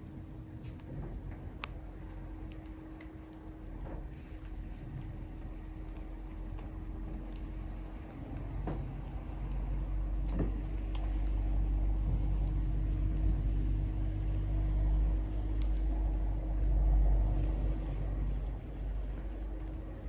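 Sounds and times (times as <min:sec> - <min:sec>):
low vehicle rumble: 0:00.0 - 0:20.0
faint high ticks: 0:15.3 - 0:16.0.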